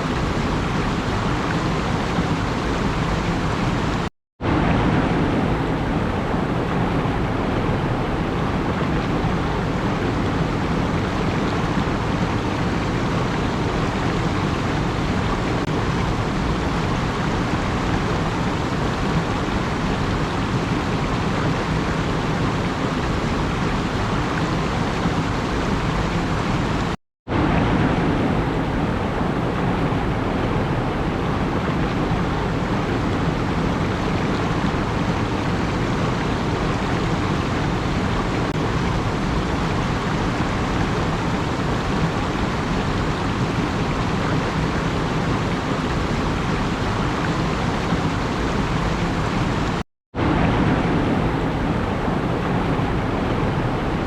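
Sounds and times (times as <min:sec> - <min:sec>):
steady rushing noise: 0:00.0 - 0:54.0.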